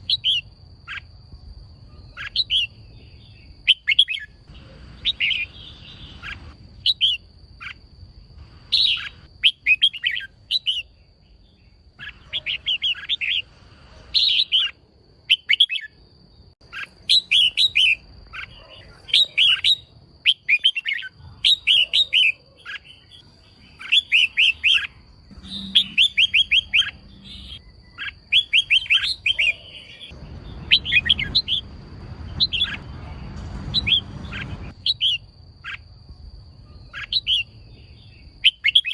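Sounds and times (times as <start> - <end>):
bird chattering calls: 2.0 - 2.7, 3.7 - 7.8, 8.6 - 10.9, 12.0 - 13.5, 14.1 - 14.8, 16.6 - 31.7, 32.3 - 35.9, 36.8 - 37.5.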